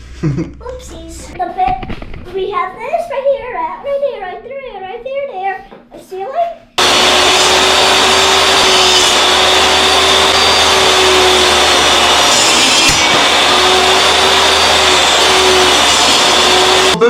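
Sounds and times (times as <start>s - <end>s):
table saw cutting boards: 6.8s - 17.0s.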